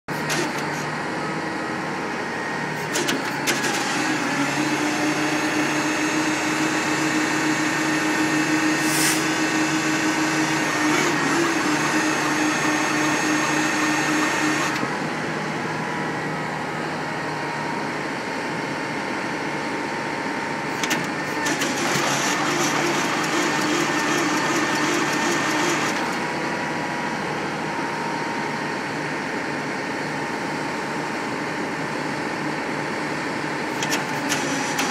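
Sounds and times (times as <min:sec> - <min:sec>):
hiss: 0:08.8 - 0:09.2
pump engine humming: 0:20.7 - 0:27.2.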